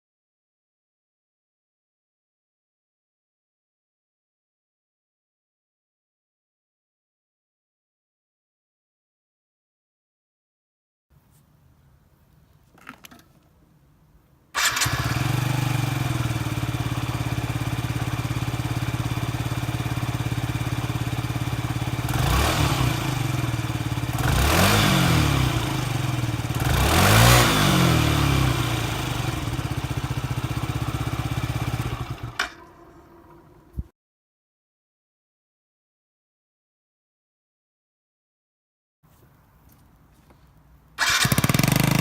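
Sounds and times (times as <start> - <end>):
scooter engine starting and revving: 14.6 - 33.7, 41.0 - 42.0.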